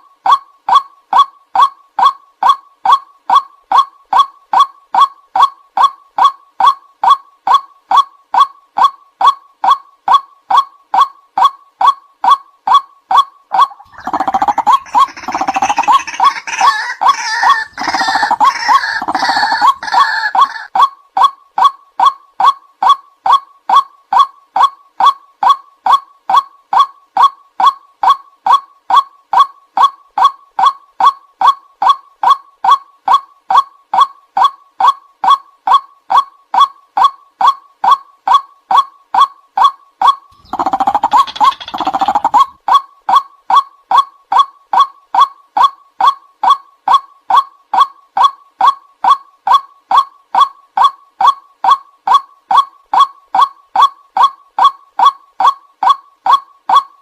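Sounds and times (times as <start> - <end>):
waterhen harsh croaking chatter: 13.5 - 20.7, 40.4 - 42.6
waterhen single call notes: 13.5 - 20.7.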